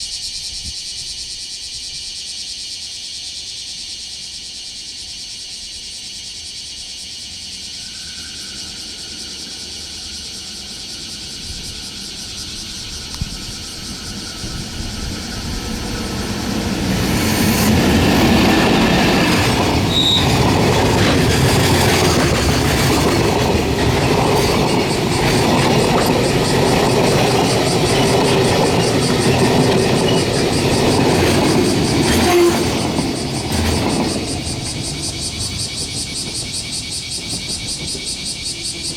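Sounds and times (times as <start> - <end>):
freight train passing: 7.8 - 38.9
wheels clacking over rail joints: 12.2 - 38.9.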